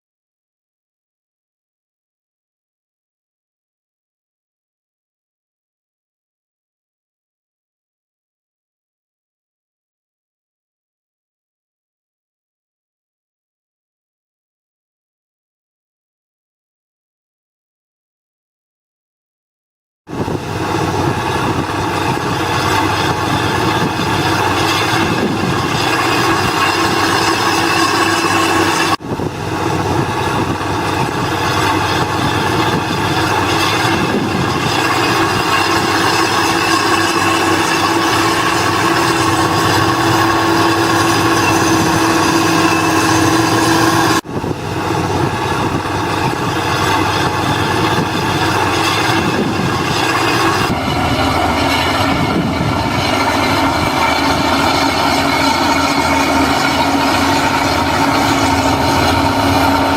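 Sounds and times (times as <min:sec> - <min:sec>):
bulldozer engine drone: 0:20.1 - 0:59.9
steel tracks ringing: 0:20.1 - 0:59.9.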